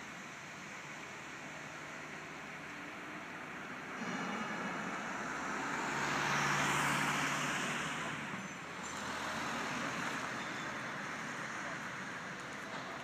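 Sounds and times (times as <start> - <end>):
vehicle driving past: 3.9 - 8.4.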